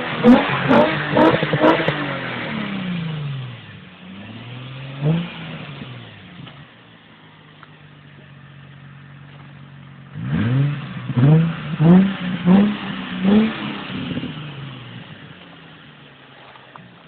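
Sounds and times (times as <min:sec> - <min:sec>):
engine revving: 0:00.0 - 0:06.6, 0:10.0 - 0:16.5
car engine idling: 0:00.0 - 0:17.0.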